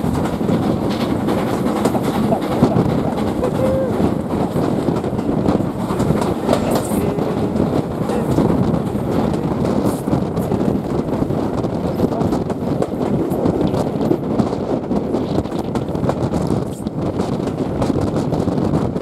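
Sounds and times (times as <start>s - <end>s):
train wheels rumbling and clacking: 0.0s - 19.0s.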